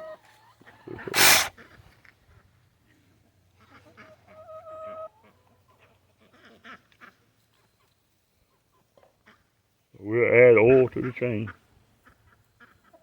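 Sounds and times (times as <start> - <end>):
chickens calling: 0.0 - 2.0, 3.6 - 6.8, 10.1 - 13.0
chickens clucking: 0.0 - 2.0, 2.9 - 7.5, 10.1 - 13.0.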